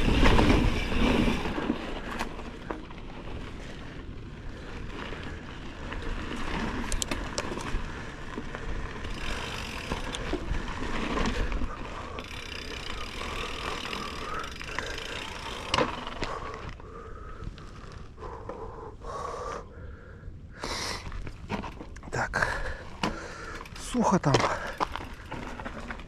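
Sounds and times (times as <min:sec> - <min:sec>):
chain and frame rattling: 0:00.0 - 0:02.6, 0:09.0 - 0:10.5, 0:12.2 - 0:16.5, 0:23.5 - 0:26.0
wind rumbling on microphone: 0:00.0 - 0:14.6
clicks over rough ground: 0:00.0 - 0:18.7, 0:20.6 - 0:26.0
bicycle tyres on dirt: 0:00.0 - 0:26.0.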